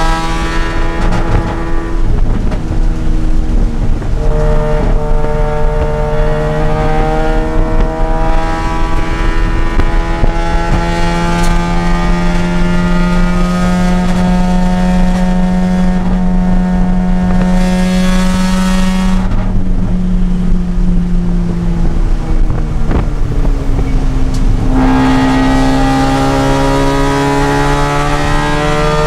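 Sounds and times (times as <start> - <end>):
rotary engine revving: 0.0 - 19.6, 21.7 - 29.0.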